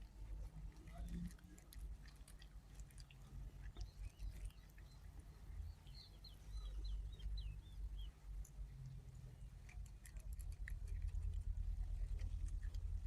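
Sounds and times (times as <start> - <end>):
kitten chewing clicks: 0.0 - 6.0, 8.3 - 13.0
bird chirping: 3.7 - 8.2.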